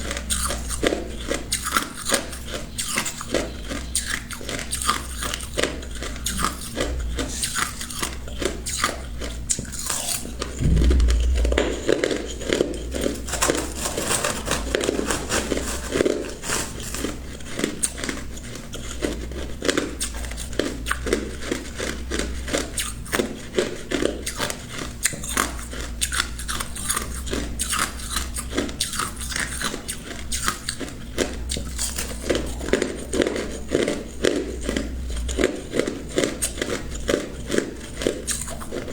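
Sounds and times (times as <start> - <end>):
low thump: 10.6 - 12.7.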